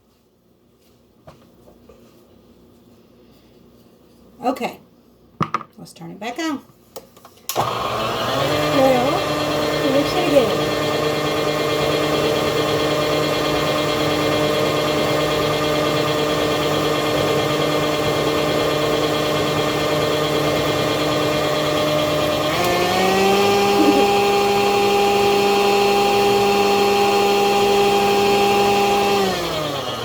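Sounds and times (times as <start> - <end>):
electric mixer motor whining: 7.5 - 30.0.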